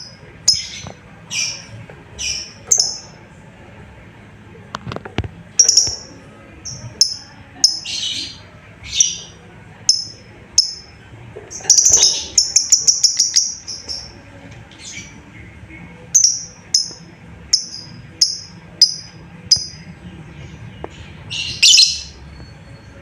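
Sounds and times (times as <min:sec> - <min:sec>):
lovebird chirping: 0:00.0 - 0:03.2, 0:05.6 - 0:09.3, 0:09.9 - 0:10.9, 0:11.5 - 0:14.2, 0:16.1 - 0:19.9, 0:21.2 - 0:22.9.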